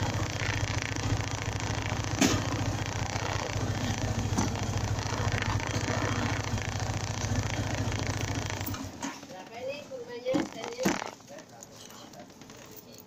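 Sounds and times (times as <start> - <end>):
sharp clicks: 0.0 - 8.9
motorcycle engine running: 0.0 - 9.2.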